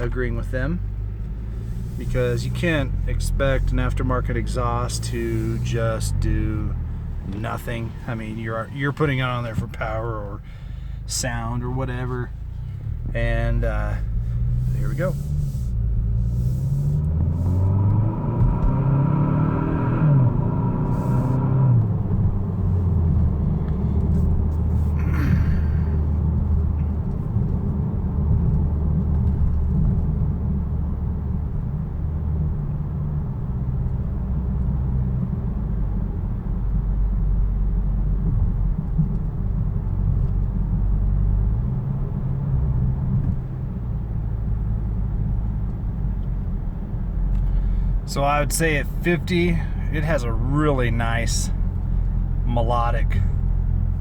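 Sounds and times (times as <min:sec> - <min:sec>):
car engine revving and droning: 0:00.0 - 0:54.0.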